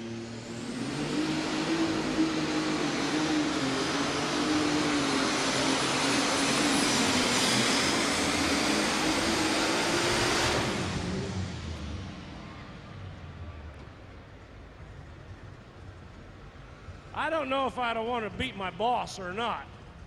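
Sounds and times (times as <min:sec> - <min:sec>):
tractor engine roaring: 0:00.0 - 0:20.0.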